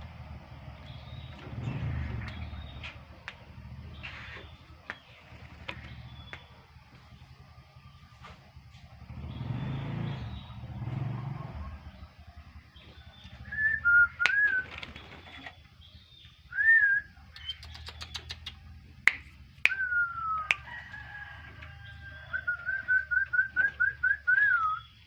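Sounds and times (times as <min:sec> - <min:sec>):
bird whistling calls: 0:12.9 - 0:18.6, 0:19.6 - 0:20.9, 0:21.8 - 0:25.0
sharp clicks: 0:17.3 - 0:20.7.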